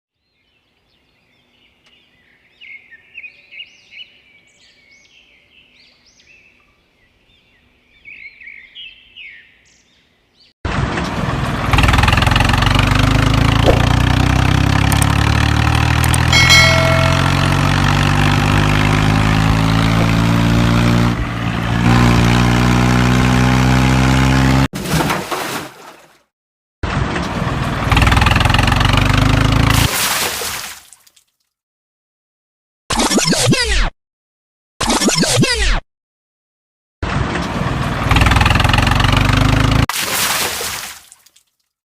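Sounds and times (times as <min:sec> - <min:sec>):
vehicle engine running: 0:11.1 - 0:24.7, 0:27.2 - 0:29.9, 0:37.5 - 0:39.9.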